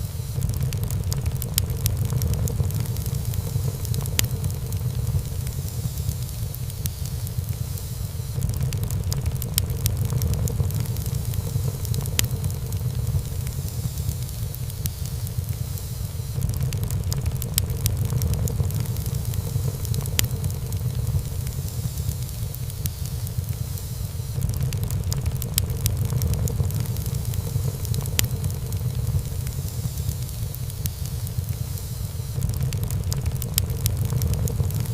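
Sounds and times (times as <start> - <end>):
steady low rumble: 0.0 - 34.9
wood fire crackling: 0.0 - 34.9
burning wood popping: 0.3 - 34.9.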